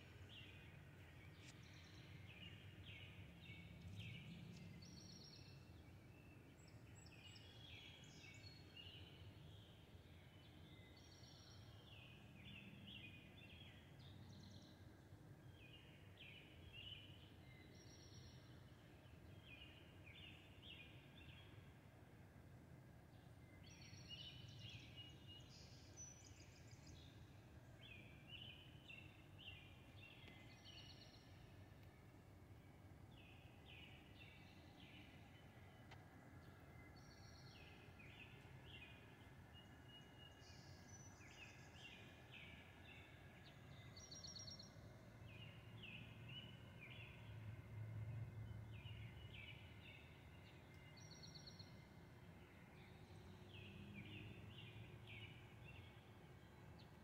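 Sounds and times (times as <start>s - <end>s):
small birds chirping: 0.0s - 21.7s, 23.2s - 57.0s
low steady background rumble: 0.0s - 57.0s.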